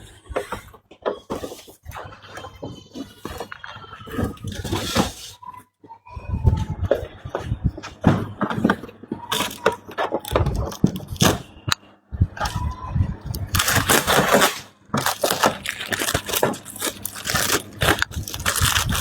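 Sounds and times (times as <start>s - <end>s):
plastic scraping: 0.0s - 5.4s, 6.4s - 11.8s, 12.4s - 19.0s
plastic clicks and cracks: 9.3s - 11.8s, 13.3s - 19.0s.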